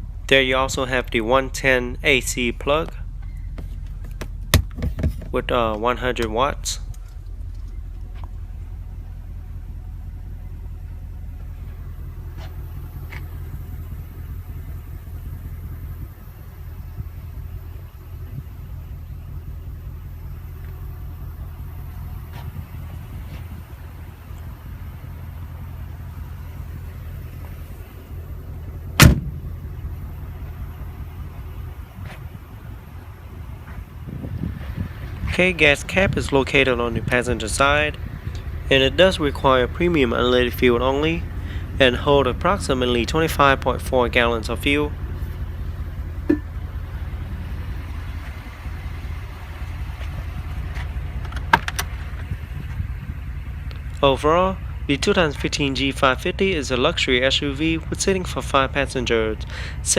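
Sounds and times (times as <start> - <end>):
car engine idling: 0.0 - 59.9
steady low rumble: 0.0 - 59.9
car door slamming: 3.5 - 5.4, 28.9 - 29.6, 51.2 - 52.0.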